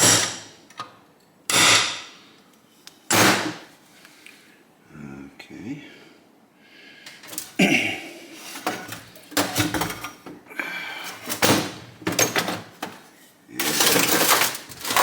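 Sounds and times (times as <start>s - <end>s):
metal tools knocking and clanking: 8.6s - 10.4s, 11.3s - 13.0s
metal parts clattering: 13.6s - 15.0s.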